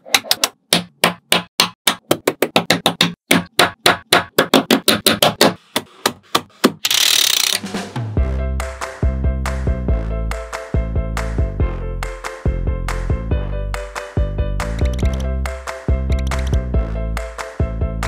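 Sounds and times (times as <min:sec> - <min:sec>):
magnetic balls clicking together: 0:14.7 - 0:15.3.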